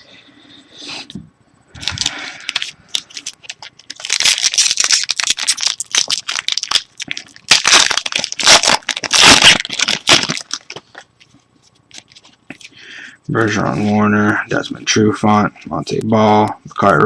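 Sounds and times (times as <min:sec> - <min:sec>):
foil wrapper crinkling and tearing: 0:01.8 - 0:11.1.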